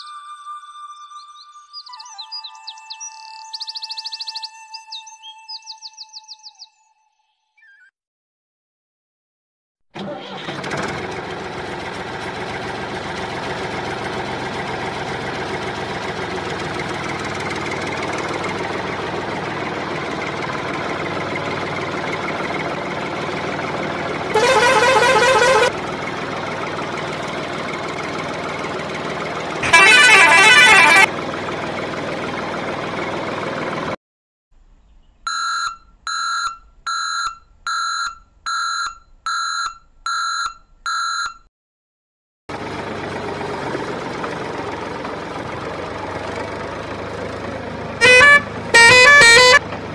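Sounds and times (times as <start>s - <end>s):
truck engine running: 10.0s - 34.0s, 42.5s - 49.9s
truck horn blasts: 24.1s - 26.0s, 29.6s - 31.2s, 48.0s - 49.8s
short beeps: 35.3s - 41.5s.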